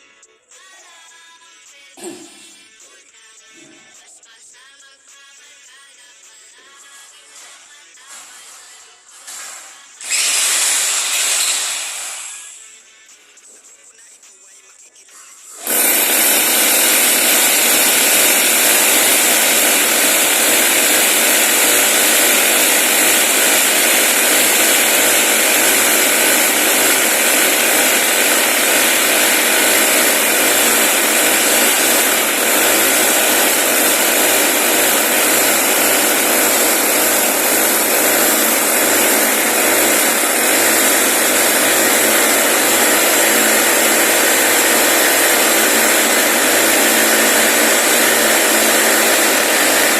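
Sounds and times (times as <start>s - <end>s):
power tool whirring: 8.3s - 12.6s, 15.5s - 49.9s.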